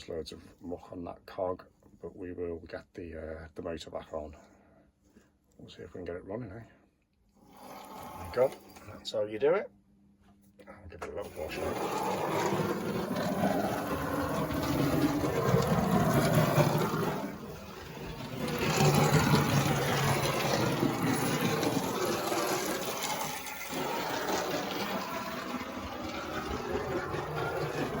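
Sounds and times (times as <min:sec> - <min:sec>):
tap water running and splashing: 0:11.3 - 0:28.0.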